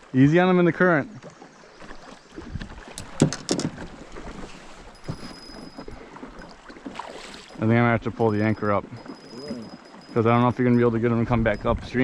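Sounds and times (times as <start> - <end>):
river noise: 0.0 - 12.0
wind: 0.0 - 12.0
sharp clicks or knocks: 3.0 - 3.8.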